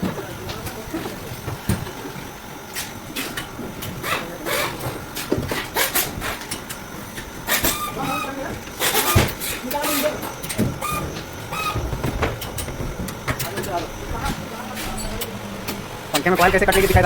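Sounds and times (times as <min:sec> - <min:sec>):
market background noise: 0:00.0 - 0:17.0
clattering knocks and clicks: 0:08.5 - 0:17.0.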